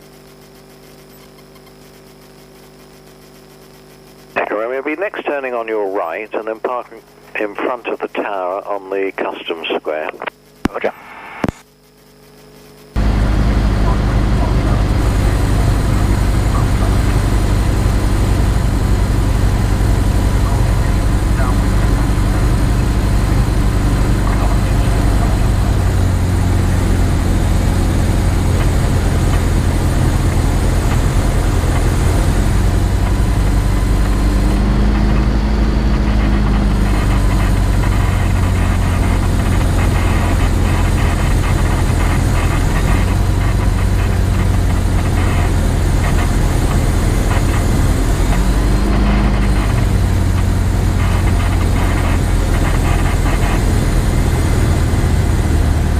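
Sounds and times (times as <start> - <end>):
light aircraft engine running: 13.0 - 55.9.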